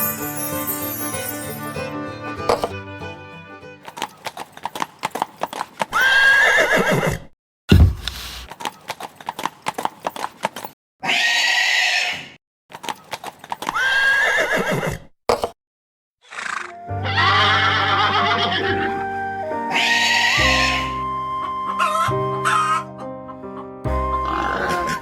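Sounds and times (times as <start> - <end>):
horse whinnying: 5.9 - 7.2, 13.8 - 15.0, 16.2 - 19.0, 19.7 - 20.9, 24.1 - 25.0
short low thud: 7.7 - 8.1.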